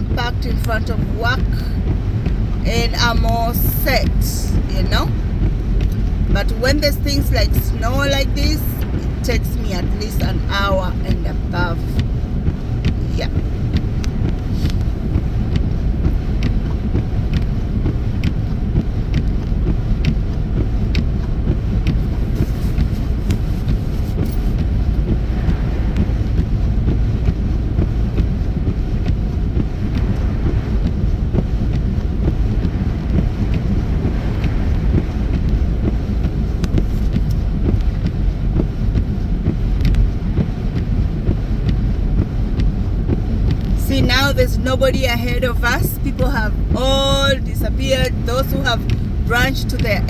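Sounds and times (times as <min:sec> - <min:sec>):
car road and engine rumble: 0:00.0 - 0:50.0
faint regular ticking: 0:00.1 - 0:50.0.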